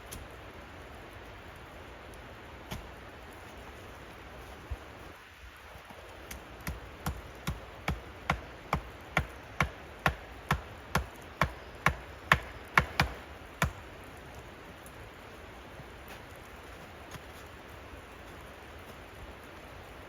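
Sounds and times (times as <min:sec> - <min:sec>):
hand tool chopping or hammering: 0:06.3 - 0:13.8.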